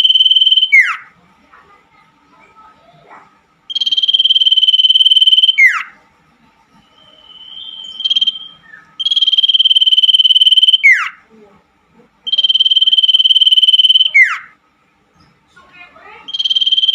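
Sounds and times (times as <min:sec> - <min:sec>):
bird high rapid trills: 0:03.7 - 0:05.9
bird rising whistle: 0:03.7 - 0:05.9, 0:06.9 - 0:11.2, 0:12.3 - 0:14.5, 0:16.3 - 0:16.9.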